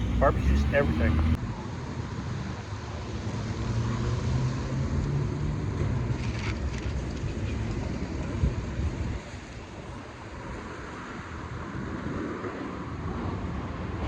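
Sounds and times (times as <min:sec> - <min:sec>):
hum: 0:00.0 - 0:01.4
vehicle rumble inside car: 0:00.0 - 0:01.4.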